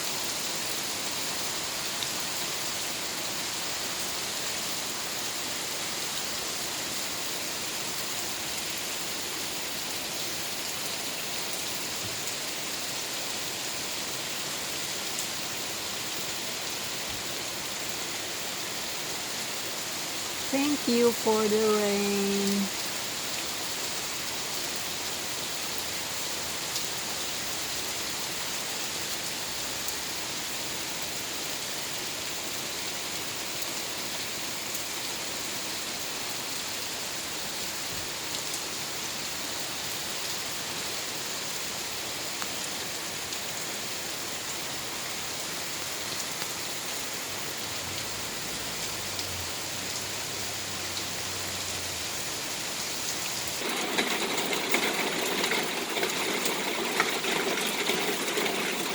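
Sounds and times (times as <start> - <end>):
steady rain hiss: 0.0 - 58.9
raindrop ticks: 53.1 - 58.9.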